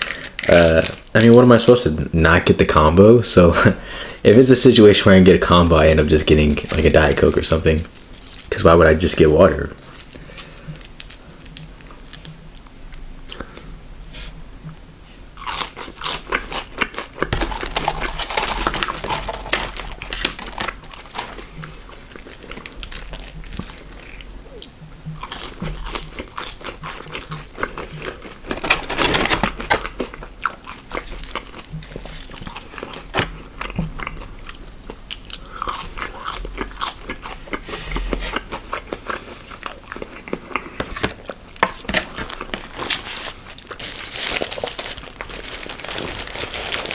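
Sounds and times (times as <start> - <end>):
crunchy food chewing: 15.4 - 46.9.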